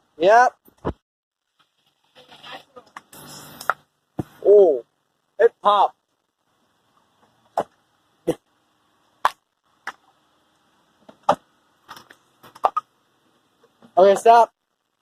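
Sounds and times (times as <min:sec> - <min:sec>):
short sharp pops and clicks: 0:00.7 - 0:01.0, 0:09.2 - 0:10.0.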